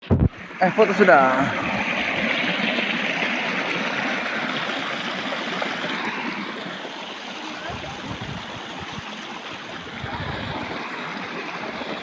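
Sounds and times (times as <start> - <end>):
waterfall rushing: 0.4 - 12.0.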